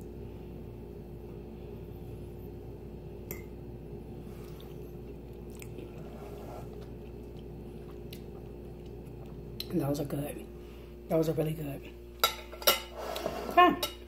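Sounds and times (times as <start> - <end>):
steady low hum: 0.0 - 14.0
person chewing: 4.4 - 9.7.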